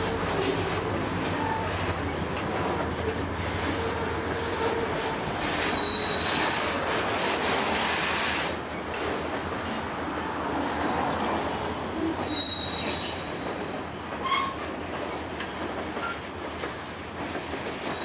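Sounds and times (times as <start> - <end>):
train wheels rumbling: 0.0 - 18.0
high wheel squeal: 5.6 - 6.7, 11.4 - 13.3.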